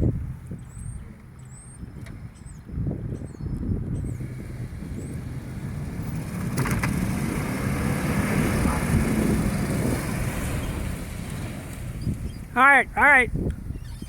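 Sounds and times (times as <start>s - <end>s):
vehicle engines running hard: 0.0s - 13.7s
engine crackle: 3.7s - 12.5s.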